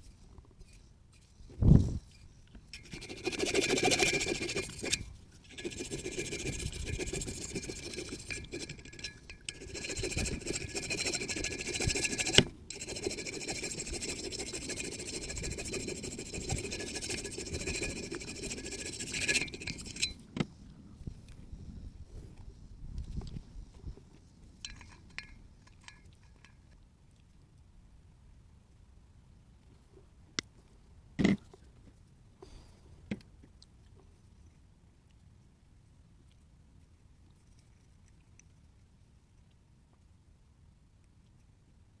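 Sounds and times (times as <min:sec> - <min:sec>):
scraping engine parts by hand: 0:02.1 - 0:20.2.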